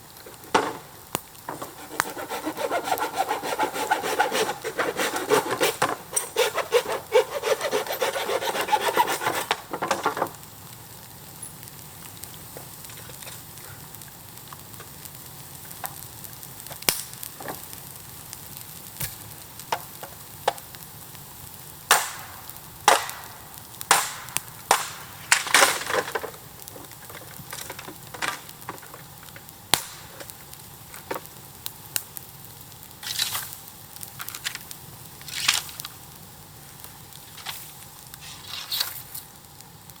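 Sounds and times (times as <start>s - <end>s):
sharp cracks and knocks: 0.2s - 10.5s, 16.6s - 17.7s, 19.0s - 20.8s, 21.9s - 31.4s, 33.0s - 36.0s
hand saw cutting bamboo: 1.5s - 10.1s.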